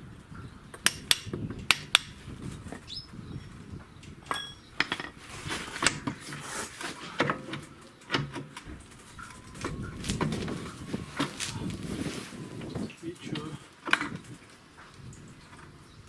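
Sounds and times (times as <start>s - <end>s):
metal tools clinking on metal: 4.2s - 6.4s.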